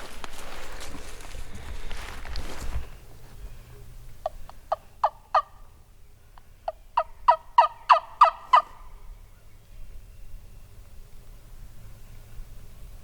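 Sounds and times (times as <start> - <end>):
turkey yelping: 4.2 - 5.6, 6.7 - 8.9.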